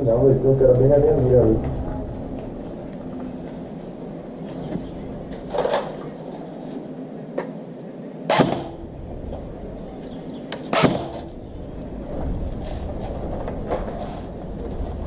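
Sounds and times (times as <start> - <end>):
airsoft gun shots: 8.3 - 8.8, 10.6 - 11.3.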